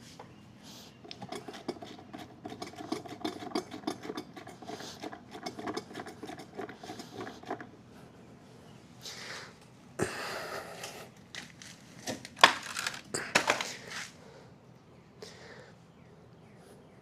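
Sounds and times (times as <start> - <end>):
hand pump clicking: 1.1 - 7.7.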